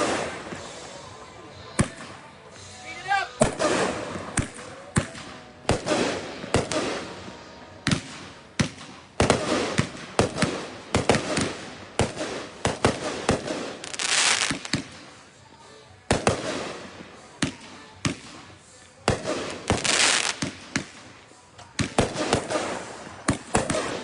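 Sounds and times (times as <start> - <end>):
firework bangs: 0.0 - 1.0, 3.4 - 15.2, 16.1 - 24.0
firework hissing: 0.0 - 2.0, 3.4 - 4.7, 8.0 - 15.4, 18.3 - 24.0.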